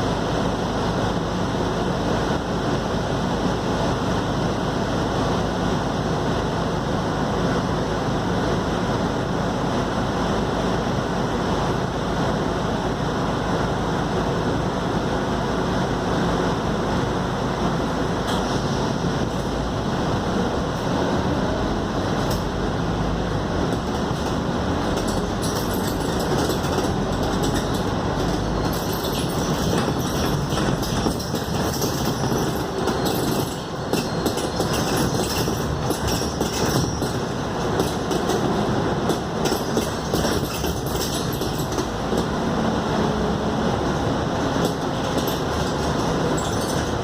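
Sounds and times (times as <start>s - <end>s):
bus engine drone: 0.0s - 47.0s
road noise: 0.0s - 47.0s
light rattling of bus fittings: 23.6s - 42.4s, 43.9s - 47.0s.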